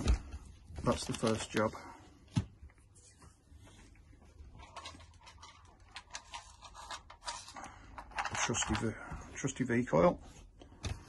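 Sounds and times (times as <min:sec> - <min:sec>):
clicks and scratches of handling: 0:04.6 - 0:08.9.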